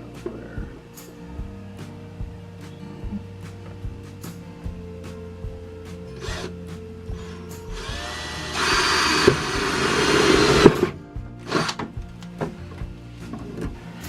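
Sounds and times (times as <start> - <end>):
power drill cutting sheet metal: 7.2 - 11.9.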